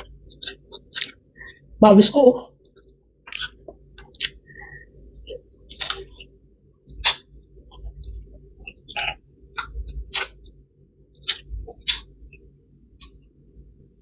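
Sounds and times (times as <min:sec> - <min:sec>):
person chewing: 0:00.0 - 0:01.6, 0:02.7 - 0:06.3, 0:06.9 - 0:10.5, 0:11.2 - 0:12.2
mouth smacks: 0:03.3 - 0:04.4, 0:05.3 - 0:06.3, 0:07.0 - 0:07.8, 0:08.7 - 0:10.4, 0:11.2 - 0:12.1
puffs of breath: 0:04.5 - 0:05.0.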